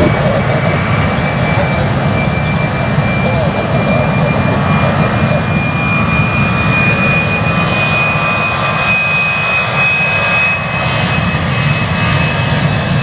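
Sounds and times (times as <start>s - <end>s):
high fan whine: 0.0s - 10.2s
jet engines at take-off power: 0.0s - 13.0s.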